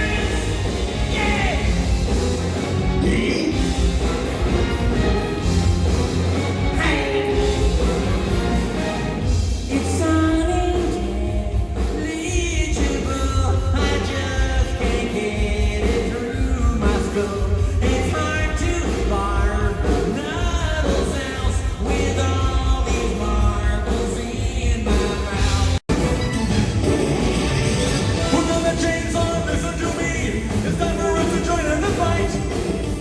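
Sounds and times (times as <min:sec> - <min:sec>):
lead singer singing: 0:00.0 - 0:02.0, 0:03.0 - 0:03.9, 0:09.5 - 0:25.8, 0:28.2 - 0:33.0
live rock band: 0:00.0 - 0:33.0.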